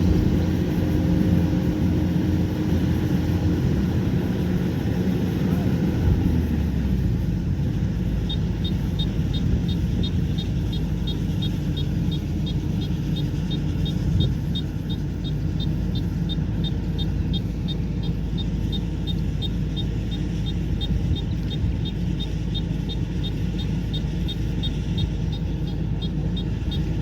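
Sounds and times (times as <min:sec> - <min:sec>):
combine harvester engine rumble: 0:00.0 - 0:27.0
rapid high-pitched chirping: 0:07.6 - 0:27.0.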